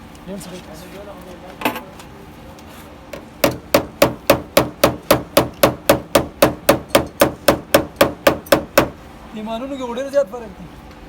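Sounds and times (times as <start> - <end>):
hammer tapping sheet metal: 3.4 - 9.0.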